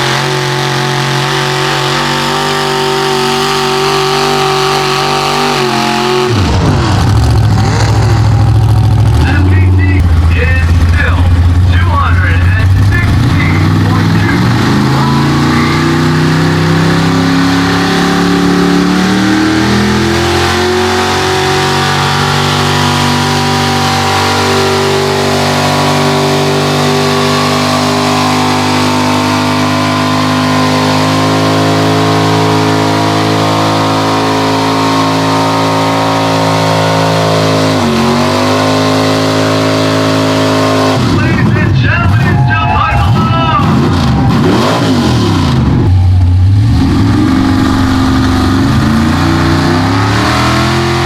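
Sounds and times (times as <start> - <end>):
truck engine revving: 0.0 - 51.0.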